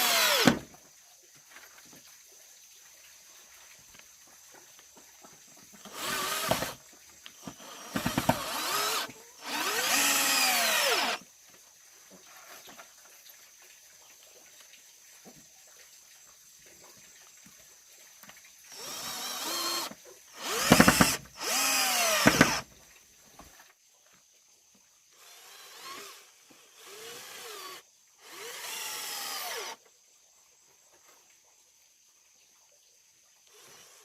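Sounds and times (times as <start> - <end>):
handheld power tool bursts: 0.0 - 0.7, 5.8 - 6.8, 7.4 - 11.2, 18.7 - 22.7, 25.4 - 29.8.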